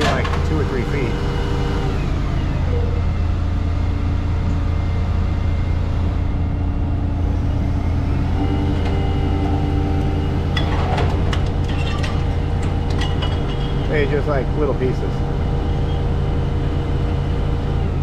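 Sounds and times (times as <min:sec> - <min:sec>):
low machine drone: 0:00.0 - 0:18.0
scrap metal clanking: 0:10.6 - 0:14.0.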